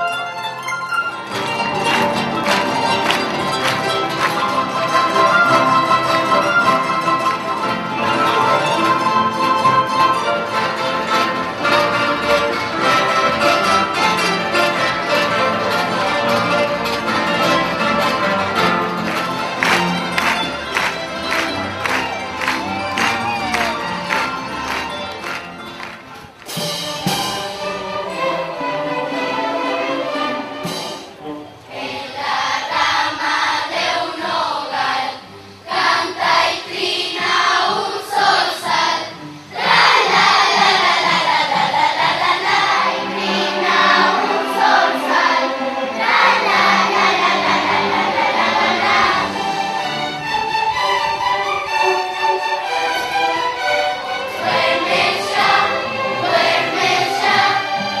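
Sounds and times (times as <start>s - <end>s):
choir singing with accompaniment: 1.0s - 58.0s.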